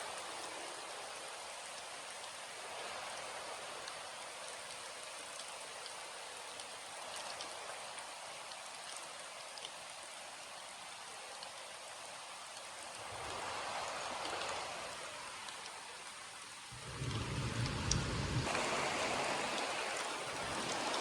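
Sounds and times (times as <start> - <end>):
rain hissing: 12.6 - 21.0
raindrops ticking sharply: 16.4 - 21.0.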